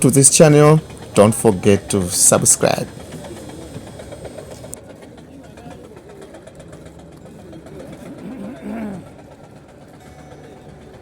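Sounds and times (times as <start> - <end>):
vehicle engine humming: 0.0 - 11.0
person calling out: 8.2 - 9.1.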